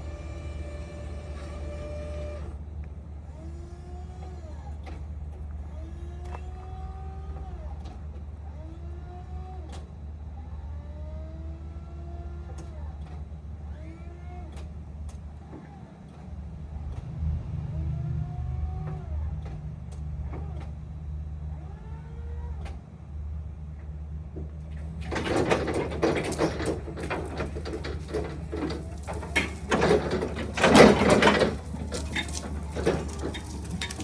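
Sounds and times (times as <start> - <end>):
electric motors whining: 0.0 - 16.6, 24.7 - 34.0.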